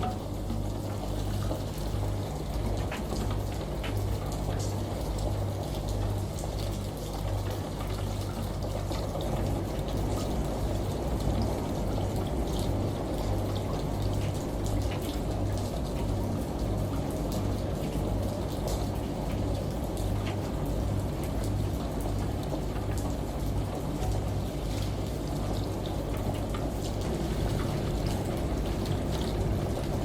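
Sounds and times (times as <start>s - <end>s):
small drip ticks: 0.0s - 30.0s
water running and pouring: 0.0s - 30.0s
low hum: 27.0s - 30.0s.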